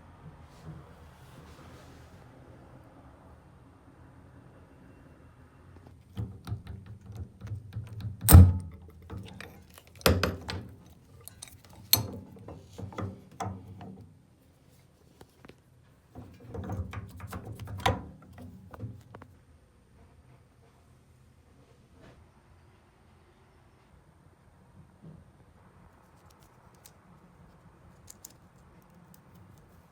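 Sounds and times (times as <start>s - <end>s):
tools knocking and clicking: 6.1s - 14.0s.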